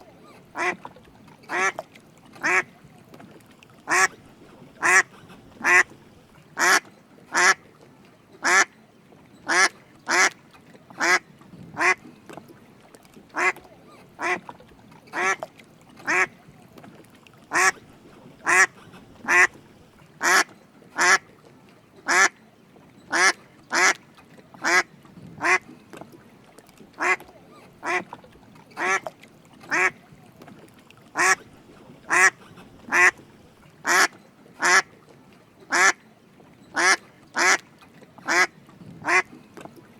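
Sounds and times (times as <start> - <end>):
duck quacking: 0.6 - 0.8, 1.5 - 1.8, 2.4 - 2.7, 3.9 - 4.2, 4.8 - 5.9, 6.6 - 7.6, 9.5 - 10.3, 11.8 - 12.0, 13.4 - 13.6, 16.1 - 16.3, 17.5 - 17.8, 18.4 - 19.6, 20.2 - 21.2, 23.1 - 24.0, 24.6 - 24.8, 25.4 - 25.6, 27.0 - 27.2, 27.8 - 28.0, 28.8 - 29.0, 29.7 - 30.0, 31.2 - 31.4, 32.1 - 33.2, 33.8 - 34.9, 35.7 - 36.0, 36.8 - 37.6, 38.3 - 39.3.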